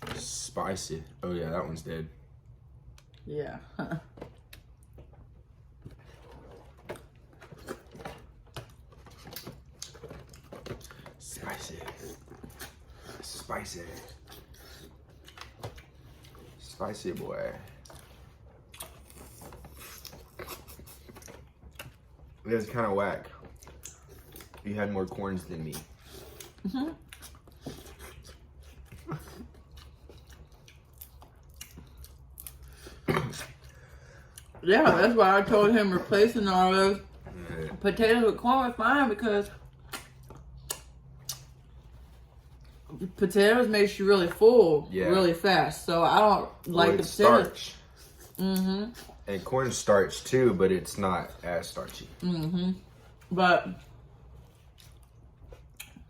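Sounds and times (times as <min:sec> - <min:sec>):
chewing and sucking: 0:17.6 - 0:22.4, 0:23.4 - 0:34.6, 0:39.6 - 0:43.0.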